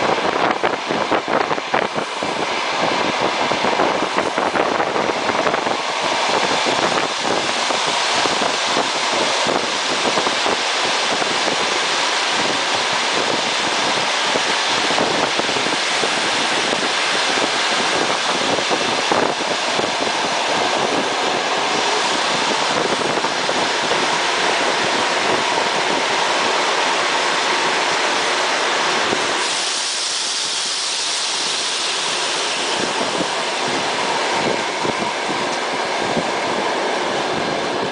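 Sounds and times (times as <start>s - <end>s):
train wheels rushing on rail: 0.0s - 37.9s.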